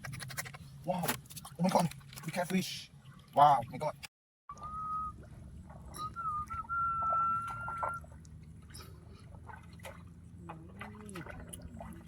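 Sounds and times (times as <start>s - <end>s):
water and mud splashing: 0.0s - 12.0s
high steady whistle: 4.5s - 5.2s, 5.9s - 8.1s.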